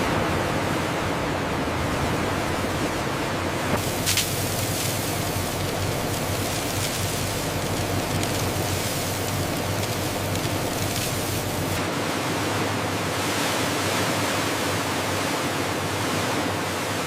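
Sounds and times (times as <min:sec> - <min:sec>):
low hum: 0:00.0 - 0:11.8
steady rushing noise: 0:00.0 - 0:17.0.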